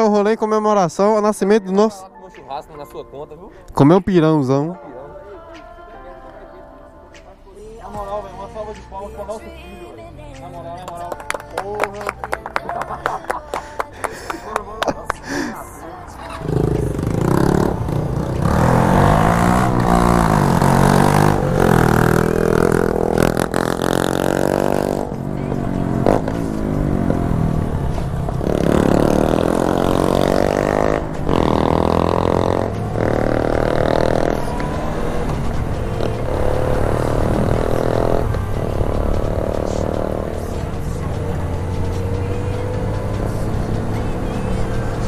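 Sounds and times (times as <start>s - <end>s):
motorcycle engine accelerating: 16.2s - 45.0s.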